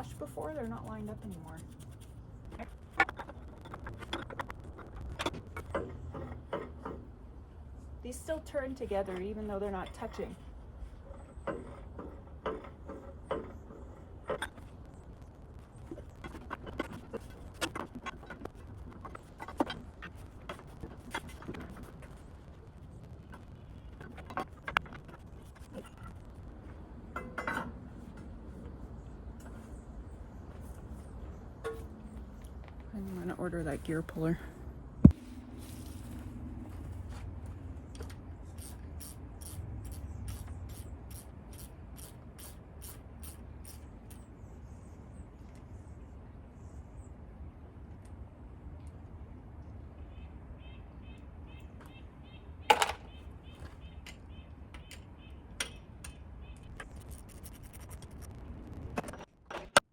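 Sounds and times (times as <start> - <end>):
low steady hum: 0.0 - 59.8
ratchet wrench clicking: 38.6 - 43.8.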